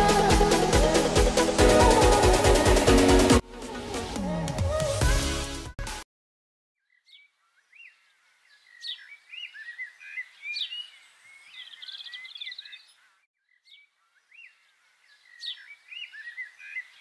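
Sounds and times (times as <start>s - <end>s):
songbirds singing: 6.8s - 17.0s.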